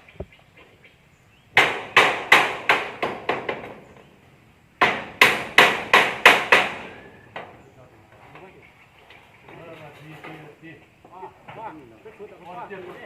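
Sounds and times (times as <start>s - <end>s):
hammer strikes: 1.6s - 3.8s, 4.8s - 7.5s.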